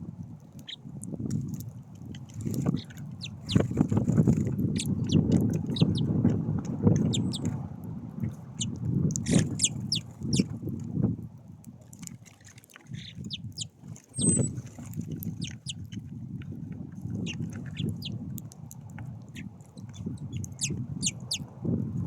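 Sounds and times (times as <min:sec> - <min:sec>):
songbirds chirping: 0:02.6 - 0:03.8, 0:04.7 - 0:06.1, 0:07.0 - 0:07.6, 0:08.4 - 0:10.5, 0:12.9 - 0:14.5, 0:15.2 - 0:15.9, 0:17.1 - 0:18.2, 0:19.4 - 0:21.5.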